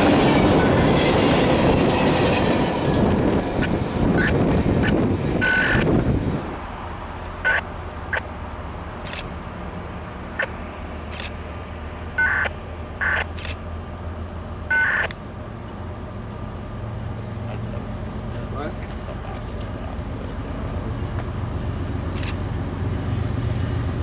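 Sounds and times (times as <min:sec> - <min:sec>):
train wheels on rails: 0:00.0 - 0:06.0
short irregular beeps: 0:05.4 - 0:05.8, 0:07.4 - 0:08.3, 0:12.2 - 0:13.6, 0:14.7 - 0:15.1.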